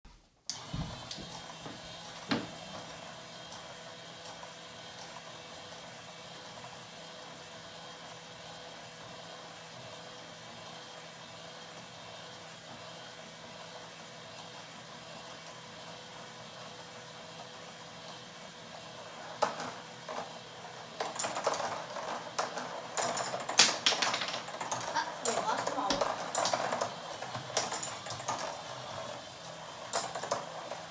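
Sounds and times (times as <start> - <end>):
marbles rolling on track: 19.2 - 30.9
marble clacking: 21.0 - 28.7
marbles clattering: 21.0 - 29.0.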